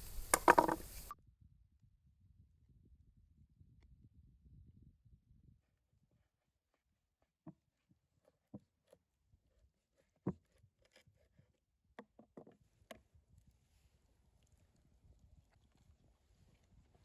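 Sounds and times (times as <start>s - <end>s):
faint clicks and knocks: 0.0s - 1.2s.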